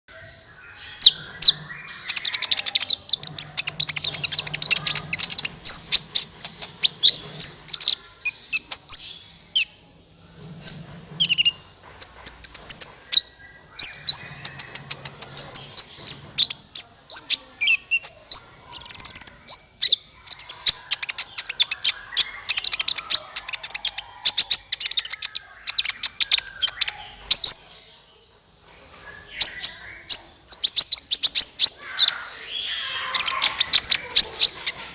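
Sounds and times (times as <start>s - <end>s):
high-pitched bird chirps and trills: 0.1s - 28.1s, 28.7s - 34.9s.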